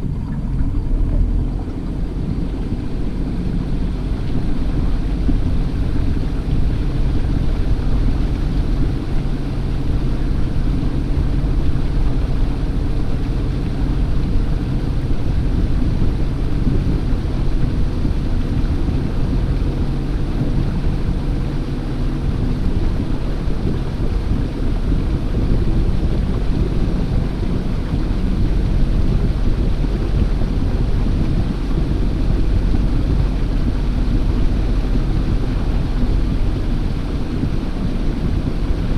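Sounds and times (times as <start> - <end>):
boat motor running: 0.0 - 38.9
wind rumble on microphone: 0.0 - 38.9.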